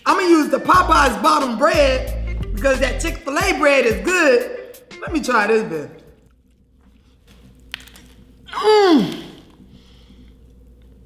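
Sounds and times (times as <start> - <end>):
man moaning with enjoyment: 8.5 - 9.5.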